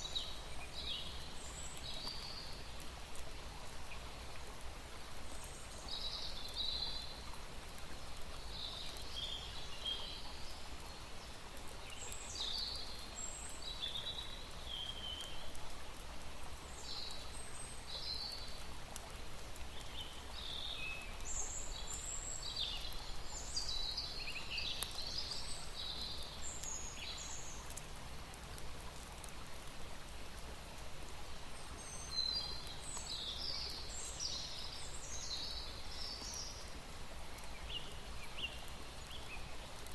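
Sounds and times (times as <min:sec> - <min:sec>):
small birds chirping: 0:00.0 - 0:02.9, 0:07.9 - 0:15.6, 0:16.6 - 0:27.9, 0:31.2 - 0:39.9
steady outdoor hiss: 0:00.0 - 0:39.9.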